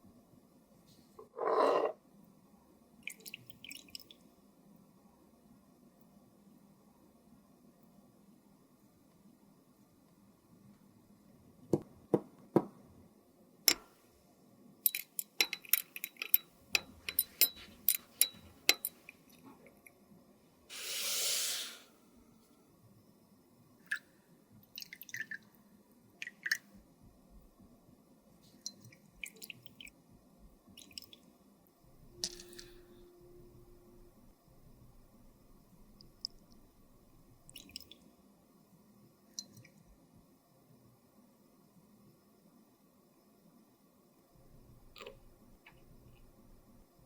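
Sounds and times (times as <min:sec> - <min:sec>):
small containers clicking and tapping: 0:14.8 - 0:19.1
spray hiss: 0:20.7 - 0:22.0.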